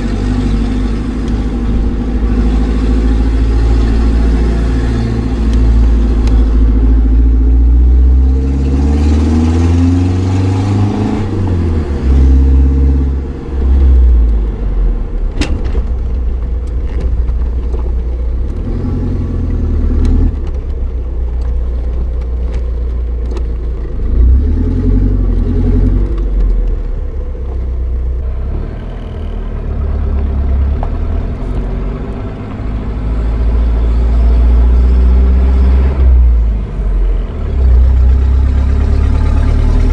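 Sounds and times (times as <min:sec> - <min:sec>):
diesel engine revving loud: 0:00.0 - 0:14.5, 0:24.1 - 0:26.2, 0:28.2 - 0:39.9.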